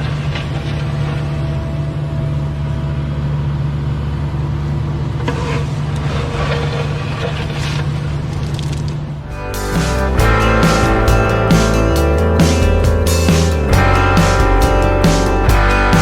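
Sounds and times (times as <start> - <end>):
excavator diesel engine running: 0.0 - 16.0
bucket scraping dirt: 5.2 - 16.0.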